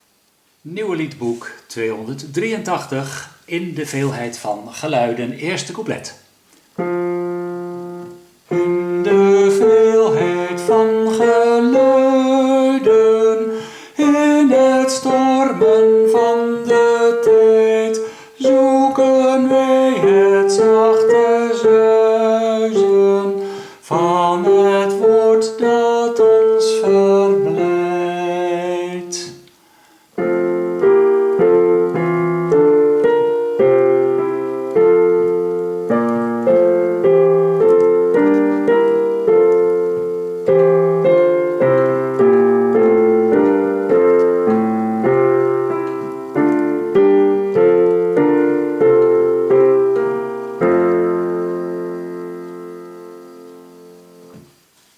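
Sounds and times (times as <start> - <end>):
keyboard playing chords: 6.8 - 29.2, 30.1 - 54.4.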